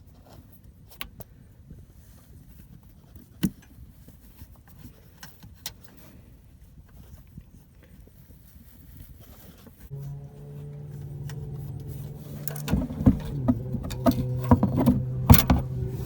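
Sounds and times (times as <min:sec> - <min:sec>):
filter wrench clicking and knocking: 0:12.4 - 0:15.9.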